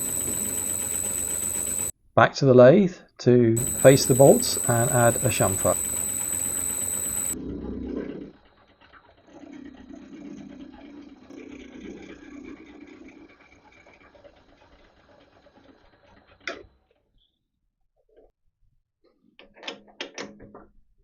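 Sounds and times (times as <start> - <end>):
metal lathe cutting: 3.6 - 7.4.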